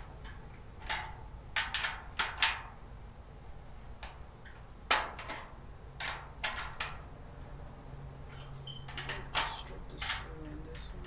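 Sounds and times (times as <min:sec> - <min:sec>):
cart parts clicking and knocking: 0:04.0 - 0:07.0, 0:08.3 - 0:10.3.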